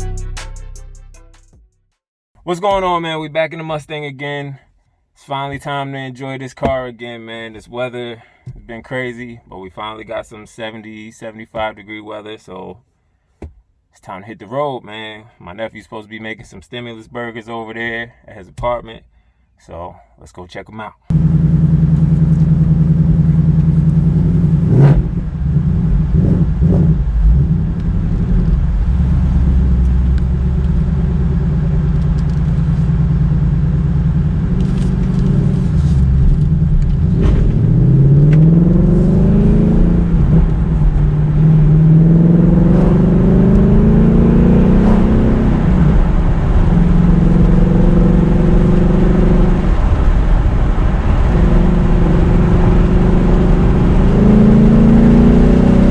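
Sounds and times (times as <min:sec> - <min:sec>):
car engine accelerating: 0:21.1 - 0:55.9.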